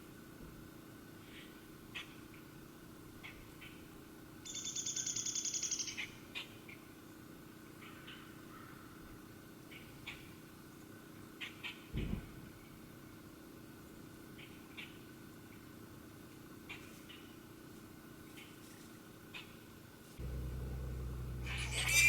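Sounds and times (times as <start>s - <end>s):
animal high trill: 20.2s - 22.0s
short high chirps: 21.0s - 22.0s.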